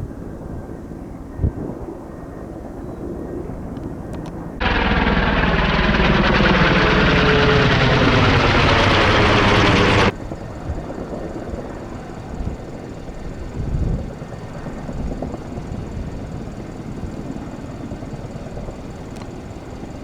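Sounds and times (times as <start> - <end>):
low-flying aircraft passing: 4.6 - 10.1
outdoor background noise: 4.6 - 10.1.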